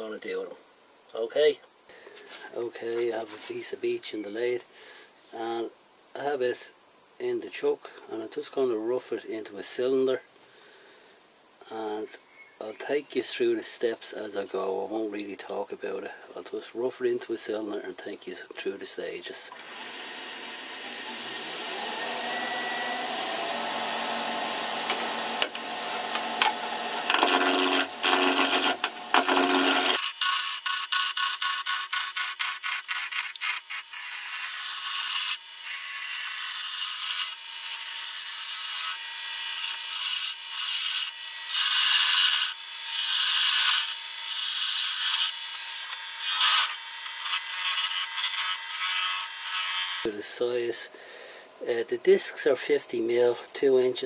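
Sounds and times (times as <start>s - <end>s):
wood lathe spinning: 19.5s - 31.0s
turning tool cutting wood: 19.5s - 50.1s.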